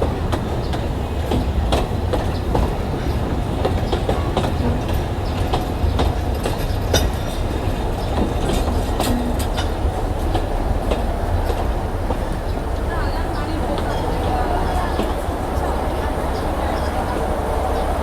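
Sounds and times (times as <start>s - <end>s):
train rumbling: 0.0s - 18.0s
wheels clacking over rail joints: 0.0s - 18.0s.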